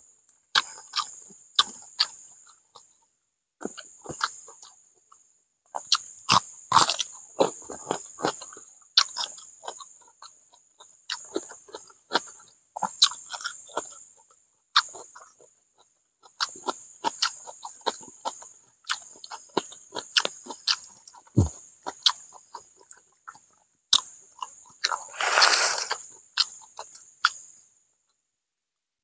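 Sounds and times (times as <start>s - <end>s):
wet chewing and crunchy bites: 0.6s - 2.2s, 5.8s - 14.0s, 16.2s - 27.5s
breathy rush: 25.1s - 26.0s.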